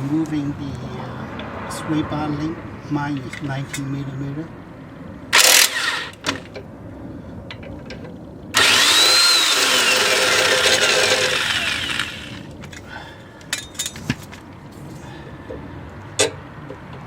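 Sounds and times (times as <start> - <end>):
impact wrench whine: 5.4 - 6.5, 8.6 - 12.6.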